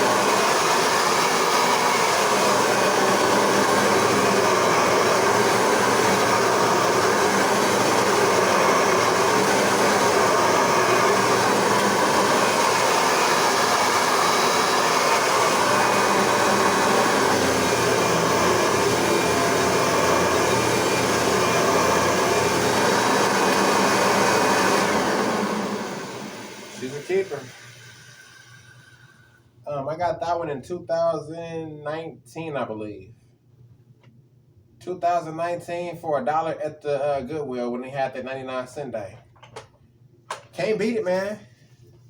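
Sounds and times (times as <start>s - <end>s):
vacuum cleaner motor running: 0.0s - 29.3s.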